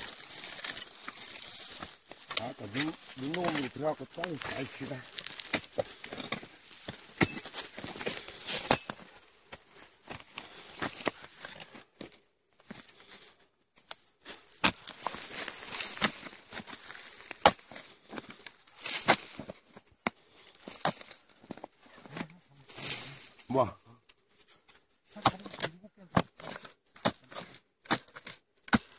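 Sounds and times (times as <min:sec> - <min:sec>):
shovel digging into soil: 0:00.0 - 0:09.1, 0:13.9 - 0:19.6, 0:25.1 - 0:28.9.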